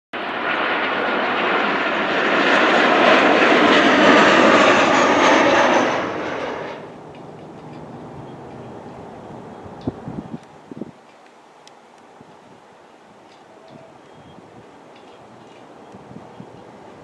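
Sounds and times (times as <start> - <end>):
jet engines passing: 0.2 - 10.4.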